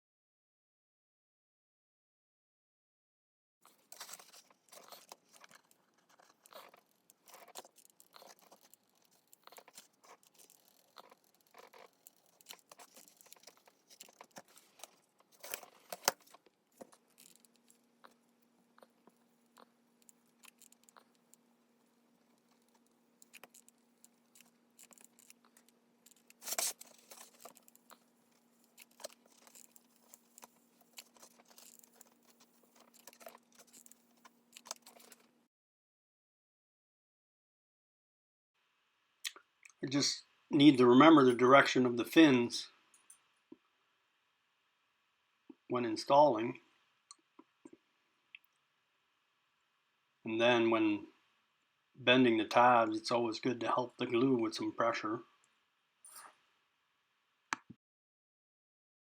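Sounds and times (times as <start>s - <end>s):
faint steady hum: 3.6s - 35.5s.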